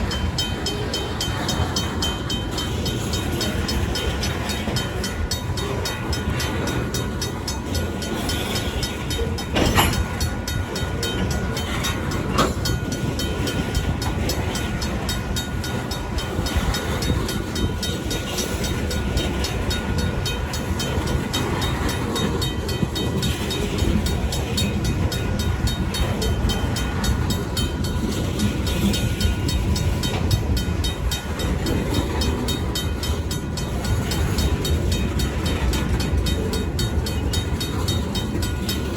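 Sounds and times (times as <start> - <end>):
crossing bell ringing: 0.0 - 38.9
train wheels rumbling on rails: 0.0 - 38.9
metallic clanks: 7.8 - 13.3.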